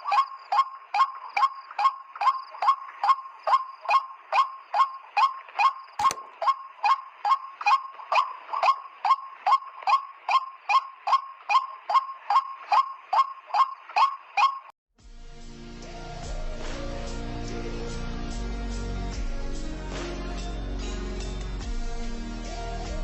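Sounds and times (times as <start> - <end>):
waterhen nasal calls: 0.0 - 14.7
sharp click: 5.5 - 7.0.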